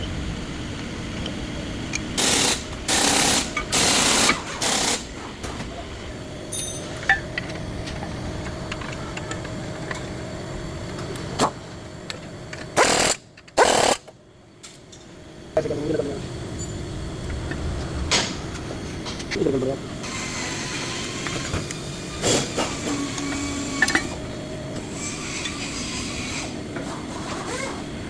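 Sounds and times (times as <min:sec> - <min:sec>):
impact wrench bursts: 0:02.2 - 0:05.1, 0:12.8 - 0:14.1
low steady hum: 0:14.2 - 0:22.2.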